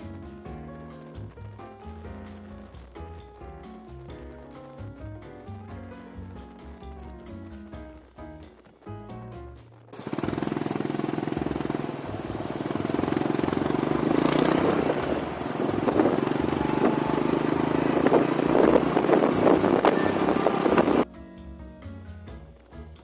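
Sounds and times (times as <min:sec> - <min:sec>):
exhaust crackling: 0:00.0 - 0:21.1
vehicle engine exhaust note: 0:10.1 - 0:21.0.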